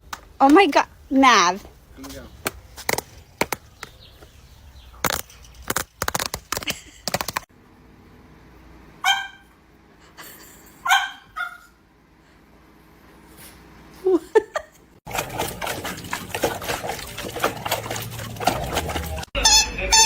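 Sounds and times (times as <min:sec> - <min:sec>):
dog barking: 0:09.0 - 0:09.5, 0:10.8 - 0:11.8.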